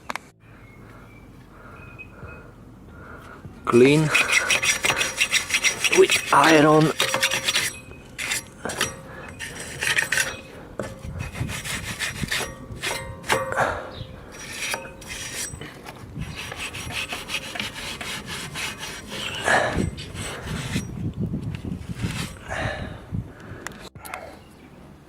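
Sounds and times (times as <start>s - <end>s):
steel tool scraping rust off metal: 3.8s - 13.7s, 14.3s - 21.0s, 21.9s - 22.5s.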